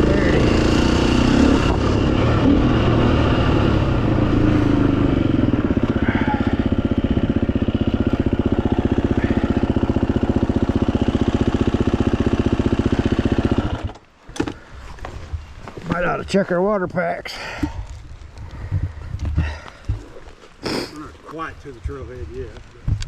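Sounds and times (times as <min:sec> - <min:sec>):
dirt bike engine idling: 0:00.0 - 0:15.1.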